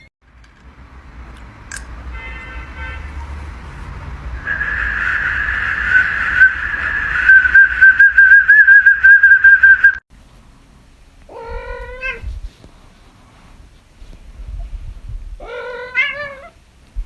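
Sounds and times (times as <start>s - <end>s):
high warbling whistle tone: 4.3s - 10.0s
cat meowing: 11.3s - 12.3s, 15.4s - 16.6s.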